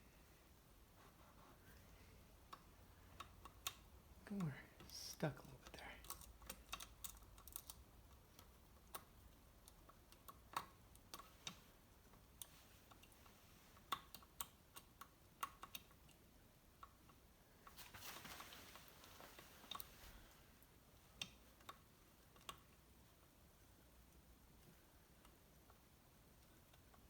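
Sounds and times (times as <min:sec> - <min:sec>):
soft rustle: 0:00.0 - 0:02.6, 0:11.2 - 0:13.9, 0:17.4 - 0:22.9.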